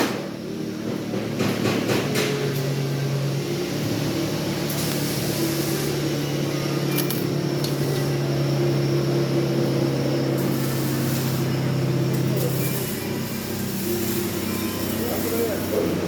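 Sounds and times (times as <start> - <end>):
welding hiss: 0.0 - 16.0
welding machine humming: 0.0 - 16.0.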